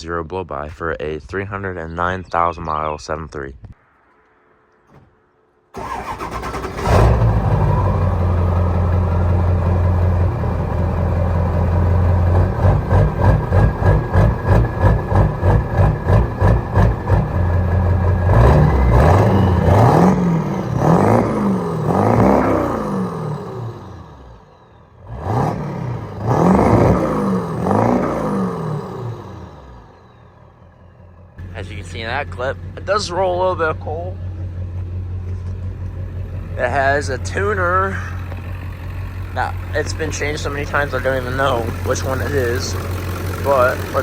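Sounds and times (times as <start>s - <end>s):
diesel engine revving: 5.7s - 44.0s.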